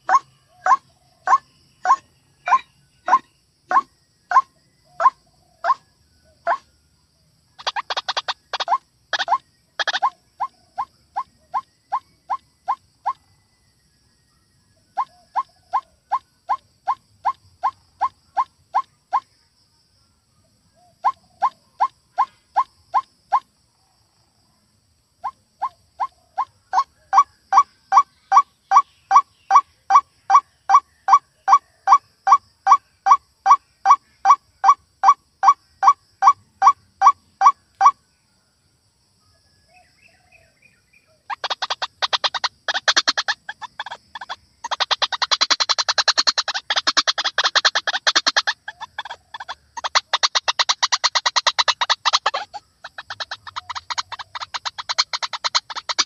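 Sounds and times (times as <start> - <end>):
waterhen calling: 0.0 - 5.8, 7.6 - 10.5, 41.3 - 56.0.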